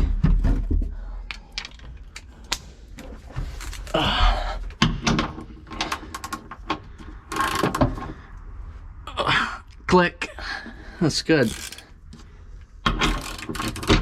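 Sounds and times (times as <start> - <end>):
torque wrench ratcheting clicks: 7.3 - 7.8, 11.4 - 11.9, 13.0 - 14.0.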